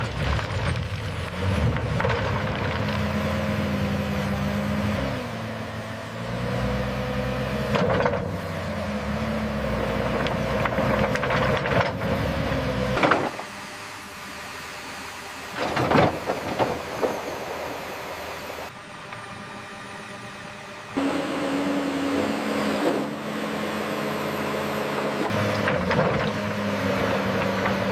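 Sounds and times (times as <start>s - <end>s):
bulldozer diesel engine under load: 0.0s - 27.9s.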